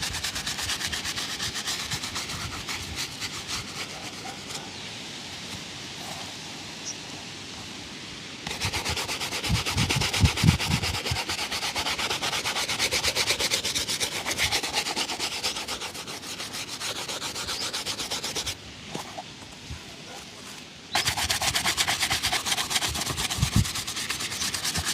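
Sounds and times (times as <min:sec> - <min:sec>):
shoe buffing strokes: 0:00.0 - 0:04.7, 0:08.4 - 0:19.2, 0:21.0 - 0:24.9.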